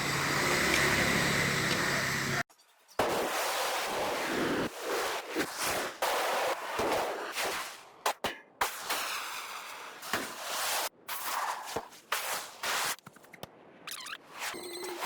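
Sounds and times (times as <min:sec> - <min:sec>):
excavator engine running: 0:00.0 - 0:02.4.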